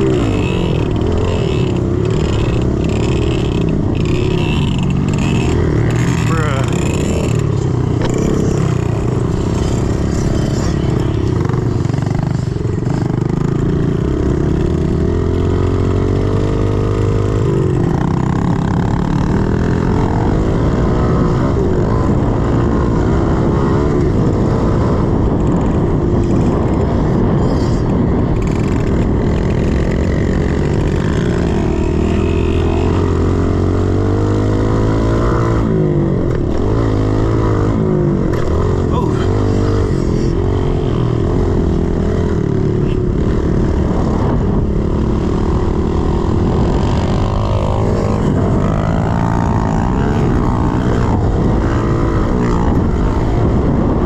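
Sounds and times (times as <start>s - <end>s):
pit bike engine revving: 0.0s - 54.0s.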